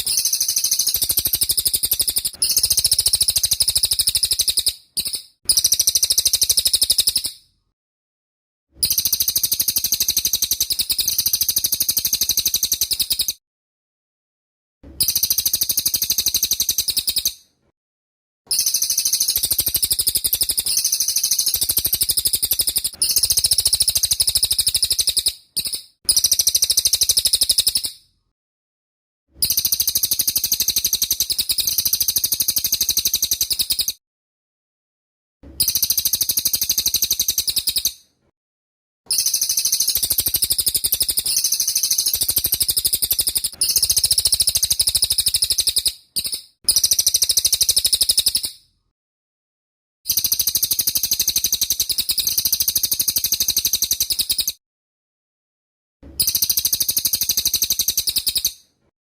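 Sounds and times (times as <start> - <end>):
songbird singing trilled phrases: 0.0 - 7.4, 18.5 - 28.0.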